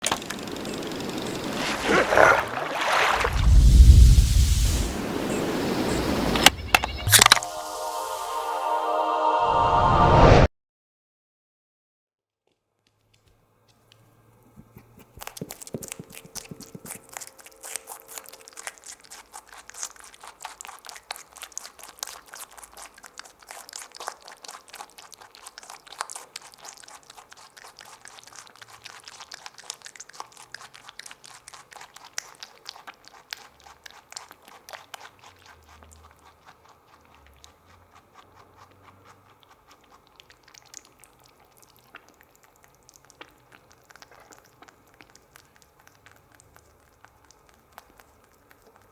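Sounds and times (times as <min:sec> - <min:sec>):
rabbit chewing: 0:13.1 - 0:48.9.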